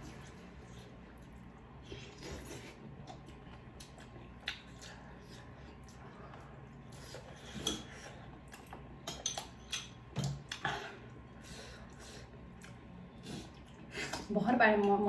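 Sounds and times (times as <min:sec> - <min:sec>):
cutlery clinking against a plate: 0:09.0 - 0:10.3.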